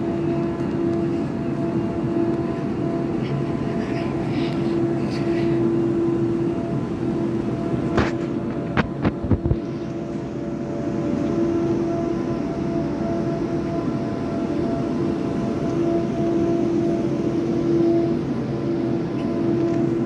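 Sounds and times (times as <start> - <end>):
electric train humming: 0.0 - 20.0.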